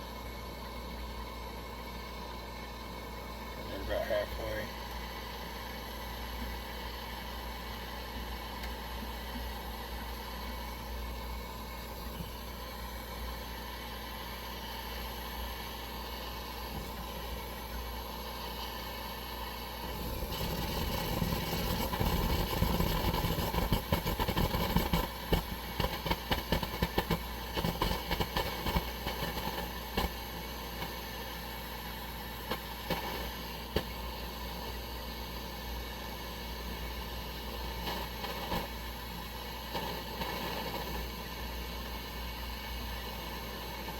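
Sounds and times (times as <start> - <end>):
gas stove burner hissing: 0.0 - 43.9
burner crackling pops: 18.4 - 31.5, 32.3 - 35.5, 36.6 - 43.9.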